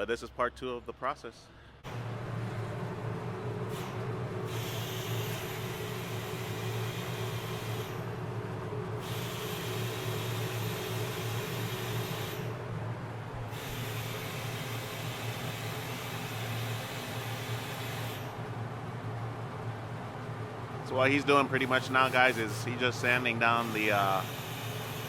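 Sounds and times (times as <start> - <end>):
power sander sanding metal: 21.3 - 25.0.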